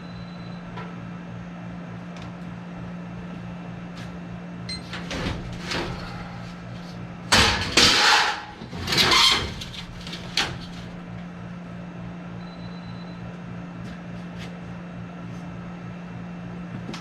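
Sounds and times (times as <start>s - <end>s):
steady low hum: 0.0s - 17.0s
loud scraping rushes: 7.3s - 10.1s.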